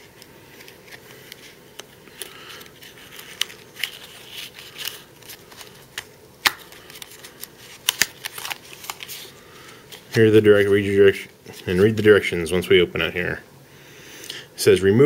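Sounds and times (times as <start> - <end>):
packaging crinkling and clicking: 0.0 - 10.3.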